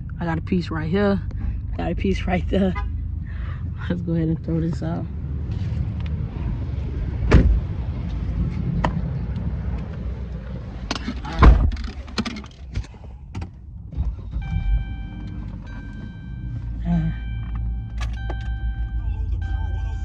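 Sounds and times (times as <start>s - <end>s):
car rumbling: 0.0s - 20.0s
car doors shutting: 7.2s - 7.8s, 10.7s - 20.0s.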